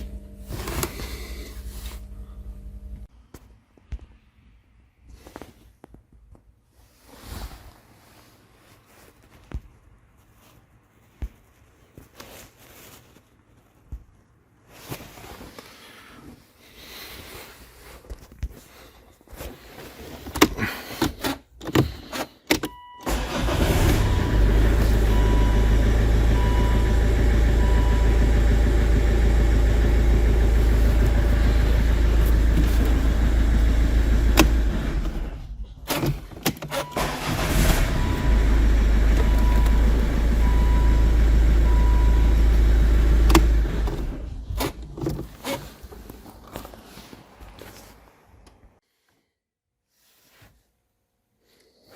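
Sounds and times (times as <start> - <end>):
starter motor cranking engine: 23.1 - 45.0.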